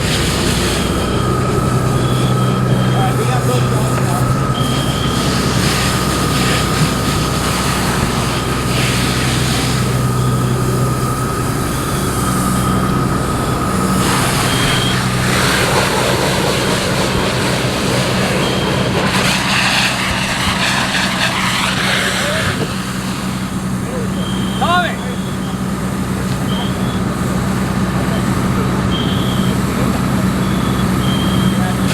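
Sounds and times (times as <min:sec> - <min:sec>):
large engine running: 0:00.0 - 0:31.9
thin steady whine: 0:00.0 - 0:31.9.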